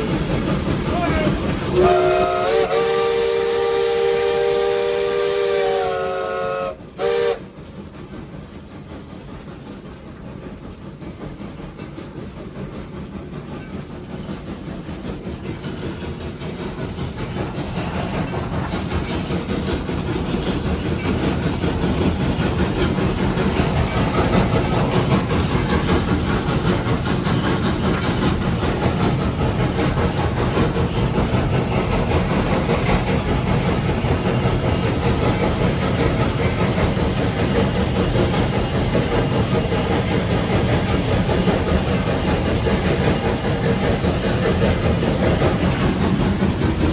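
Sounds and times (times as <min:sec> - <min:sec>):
steam locomotive exhaust chuffs: 0:00.0 - 0:46.9
steam locomotive whistle: 0:01.1 - 0:07.5.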